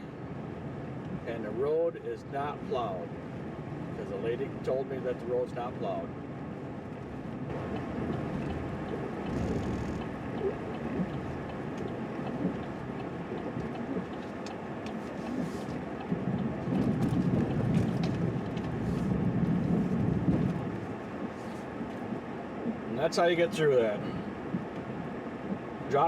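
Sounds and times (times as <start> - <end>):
plow truck rumbling: 6.7 - 22.6.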